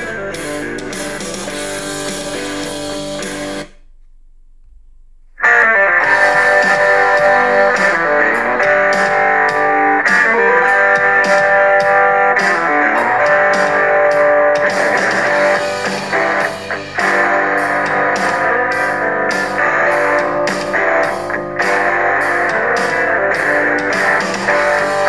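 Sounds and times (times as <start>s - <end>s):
instrumental guitar rock music: 0.0s - 3.7s, 5.4s - 25.0s.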